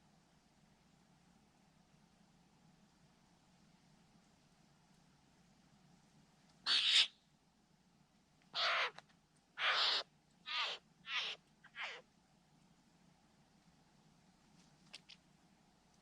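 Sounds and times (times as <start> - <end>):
bird harsh rasping calls: 6.7 - 7.2, 8.6 - 9.0, 9.6 - 12.0.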